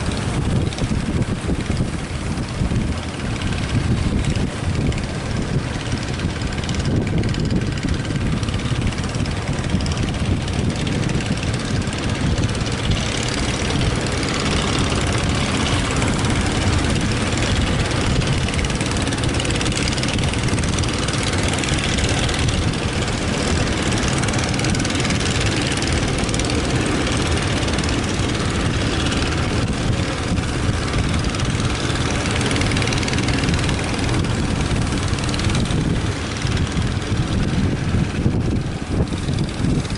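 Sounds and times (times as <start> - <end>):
boat engine running: 0.0 - 39.9
wind buffeting microphone: 0.0 - 39.9.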